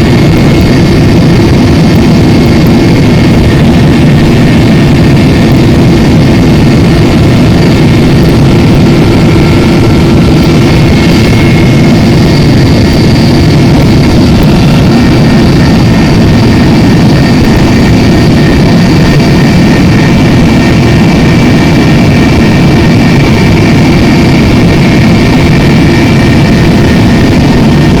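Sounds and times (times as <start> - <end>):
helicopter engine and rotor drone: 0.0 - 28.0
high turbine whine: 0.0 - 28.0.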